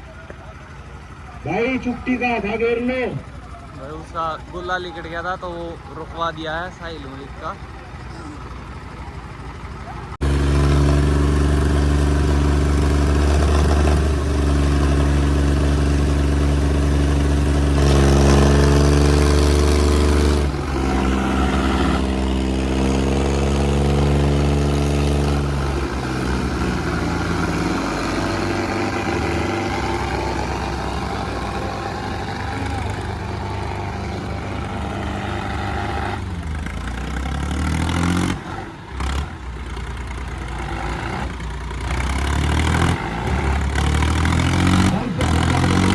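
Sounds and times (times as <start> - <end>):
tractor diesel engines revving: 0.0 - 45.9.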